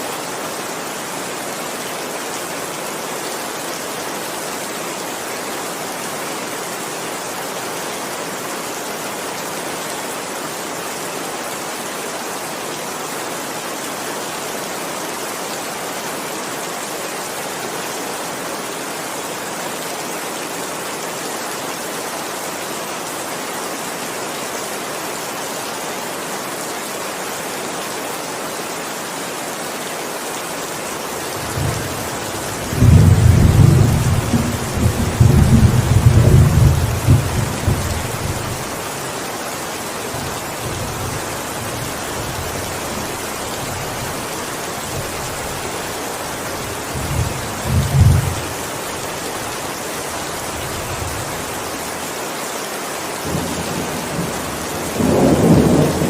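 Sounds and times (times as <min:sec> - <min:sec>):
heavy rain: 0:00.0 - 0:56.0
rolling thunder: 0:31.5 - 0:38.4.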